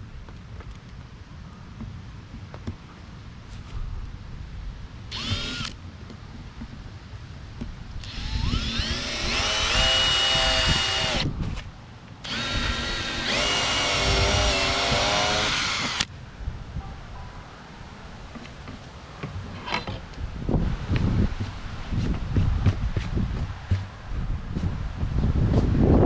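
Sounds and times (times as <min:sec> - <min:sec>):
electric drill boring plastic: 0:05.1 - 0:05.8, 0:08.0 - 0:11.3, 0:12.2 - 0:16.1.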